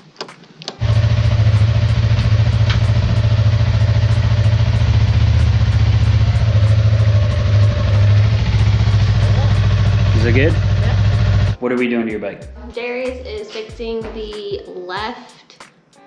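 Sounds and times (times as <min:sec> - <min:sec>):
motorcycle engine idling: 0:00.8 - 0:11.6.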